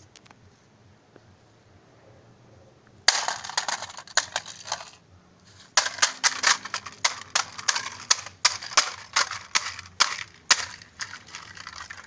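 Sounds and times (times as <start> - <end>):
hard plastic cracking and knocking: 3.1 - 5.0, 5.7 - 12.0.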